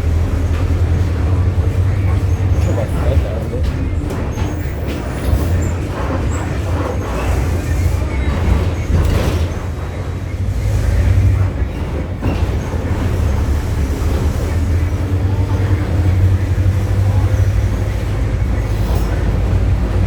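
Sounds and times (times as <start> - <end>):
bus body rattling: 0.0 - 20.0
bus engine drone: 0.0 - 20.0.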